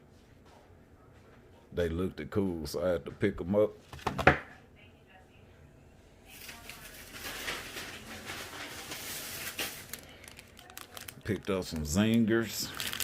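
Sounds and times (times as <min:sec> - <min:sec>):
plastic packaging crinkling: 0:06.3 - 0:13.0.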